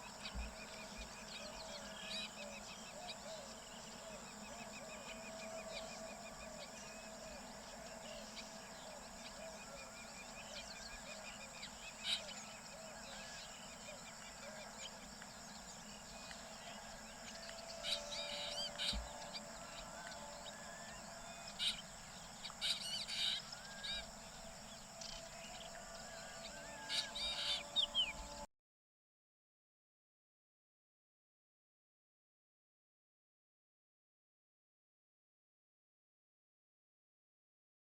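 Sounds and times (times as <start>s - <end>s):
steady high-pitched hum: 0.0s - 28.5s.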